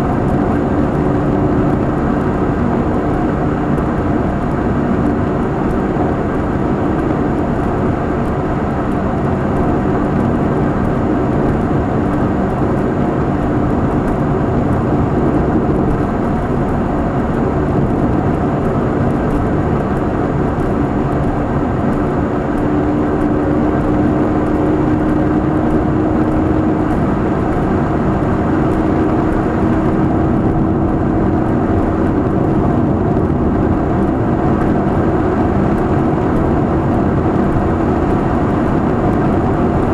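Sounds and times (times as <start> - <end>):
car engine from inside cabin: 0.0 - 39.9
road noise: 0.0 - 39.9.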